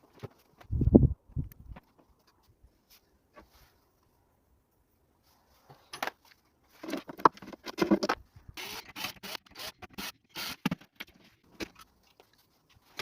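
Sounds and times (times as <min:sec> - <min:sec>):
objects scraping and rustling: 0:05.2 - 0:08.4.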